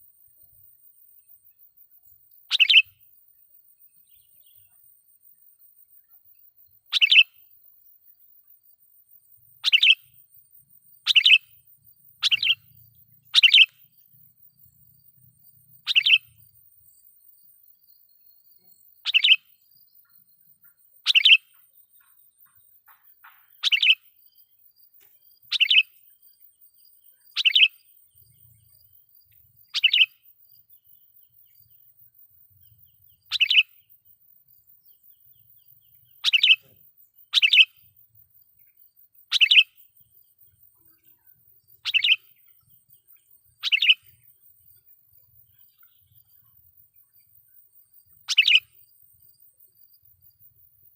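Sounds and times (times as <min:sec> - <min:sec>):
bird giving sharp calls: 0:02.5 - 0:02.9, 0:06.9 - 0:07.2, 0:09.6 - 0:10.0, 0:11.1 - 0:11.4, 0:12.2 - 0:12.6, 0:13.3 - 0:13.7, 0:15.9 - 0:16.2, 0:21.1 - 0:21.4, 0:23.6 - 0:24.0, 0:25.5 - 0:25.9, 0:33.3 - 0:33.7, 0:36.2 - 0:36.6, 0:37.3 - 0:37.7, 0:39.3 - 0:39.7, 0:43.6 - 0:44.0, 0:48.3 - 0:48.6.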